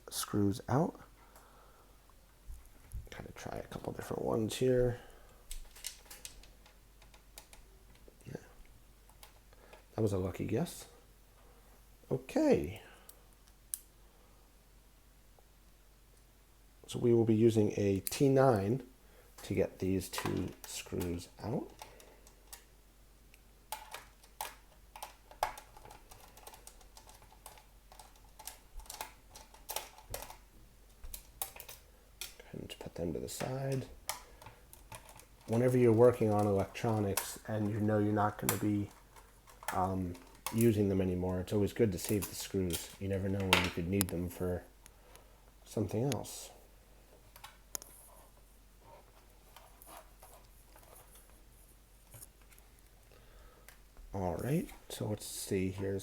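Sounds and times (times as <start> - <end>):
plastic and metal handling clicks: 23.3 - 40.8, 41.9 - 44.2.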